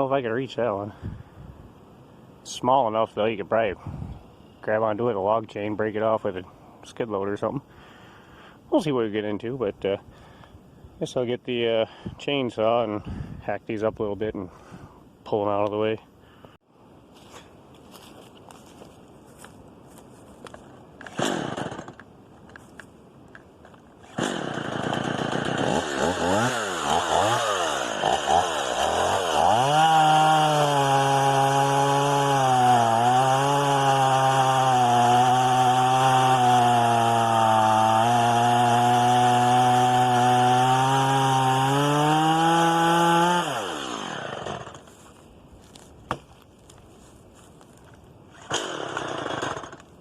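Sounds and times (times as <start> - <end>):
chainsaw revving and cutting: 21.2 - 22.0, 24.1 - 44.8, 48.5 - 49.8.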